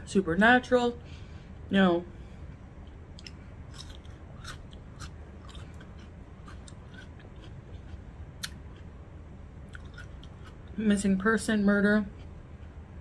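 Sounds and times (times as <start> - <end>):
faint low room hum: 0.0 - 13.0
person chewing food: 2.8 - 9.0, 9.6 - 10.8, 12.1 - 13.0.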